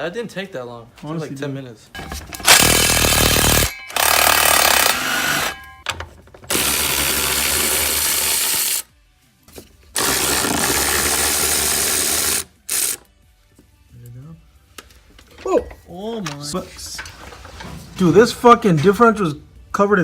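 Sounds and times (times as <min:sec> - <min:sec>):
power tool running in bursts: 0:02.4 - 0:05.6, 0:10.0 - 0:13.0.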